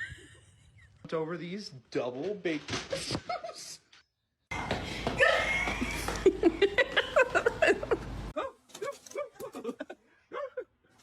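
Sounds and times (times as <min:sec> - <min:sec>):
people laughing: 0:05.1 - 0:08.2, 0:09.3 - 0:10.1.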